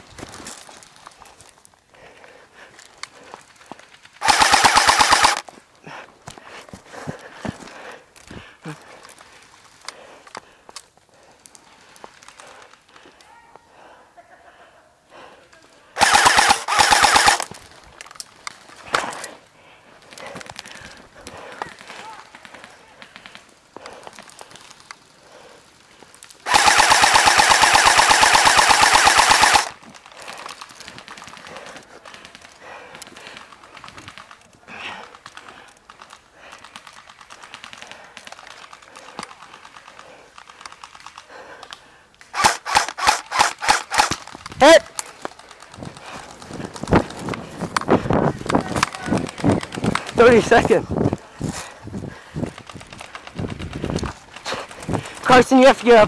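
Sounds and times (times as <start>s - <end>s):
airsoft rifle firing bursts: 4.2s - 5.5s, 16.0s - 17.6s, 26.4s - 29.9s, 42.3s - 46.3s.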